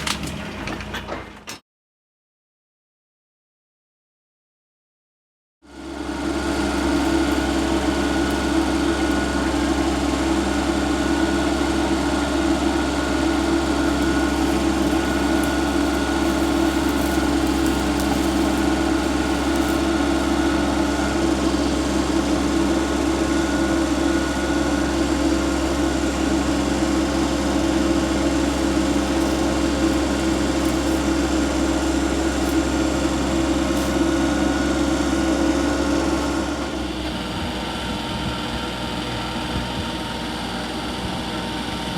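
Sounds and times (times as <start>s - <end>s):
tractor engine running: 5.7s - 41.9s
thin steady whine: 6.4s - 37.7s.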